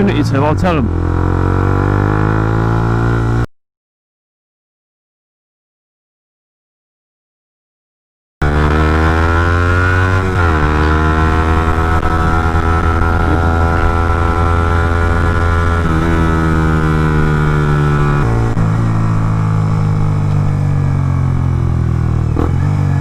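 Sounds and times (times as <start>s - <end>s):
motorcycle engine running: 8.4s - 23.0s.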